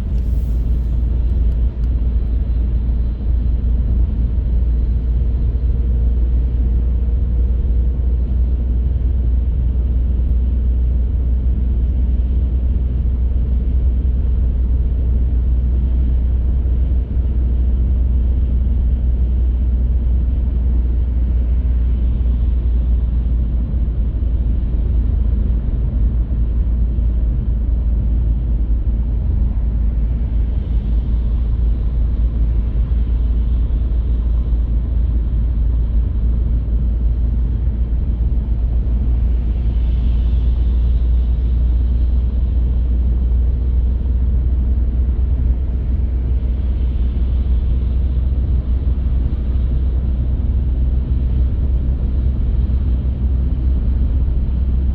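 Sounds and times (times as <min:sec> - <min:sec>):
car engine: 0:00.0 - 0:05.7
road and tyre rumble: 0:00.0 - 0:54.9.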